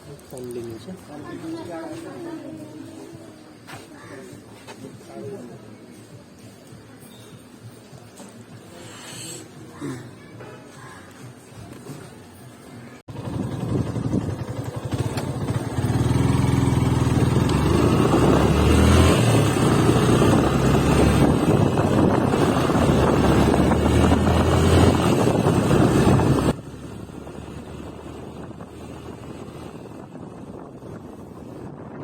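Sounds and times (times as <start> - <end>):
road and wind noise: 10.3 - 32.0
motorcycle engine running: 13.1 - 32.0.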